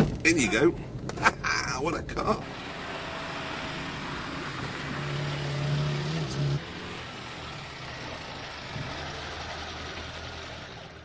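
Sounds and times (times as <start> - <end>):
low steady engine hum: 0.0 - 11.0
road noise: 0.0 - 11.0
car engine driving past: 2.4 - 11.0.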